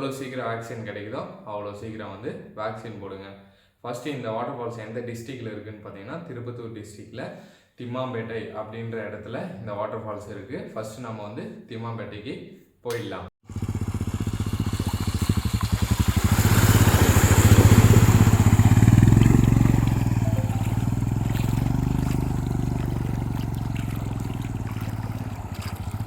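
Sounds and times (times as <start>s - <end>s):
motorcycle engine running: 13.4s - 26.0s.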